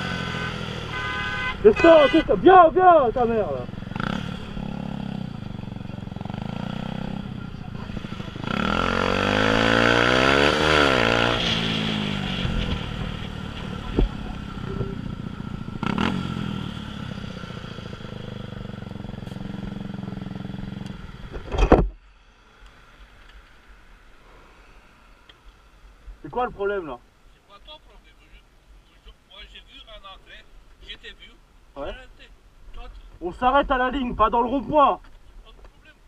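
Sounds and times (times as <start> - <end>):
vehicle passing by: 0.0 - 20.8
motorcycle engine idling: 2.7 - 8.7, 12.9 - 21.5.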